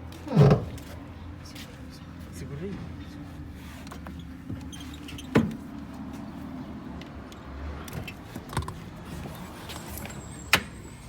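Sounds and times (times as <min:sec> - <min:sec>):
knocks and clunks: 0:00.3 - 0:00.9.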